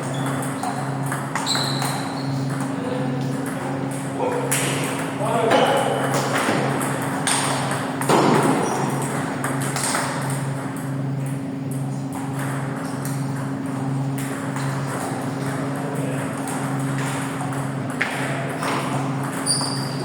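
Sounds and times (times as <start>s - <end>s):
table tennis balls clicking: 14.2s - 20.0s.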